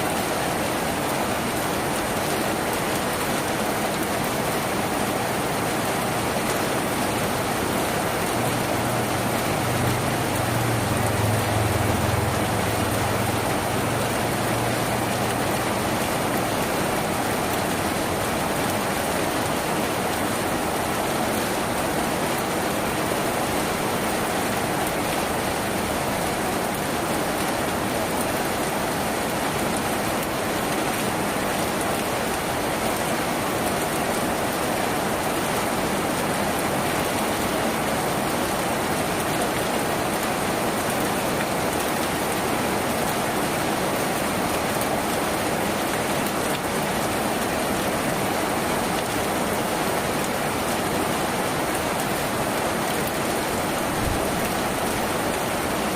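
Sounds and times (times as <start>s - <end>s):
rain on a tin roof: 0.0s - 55.9s.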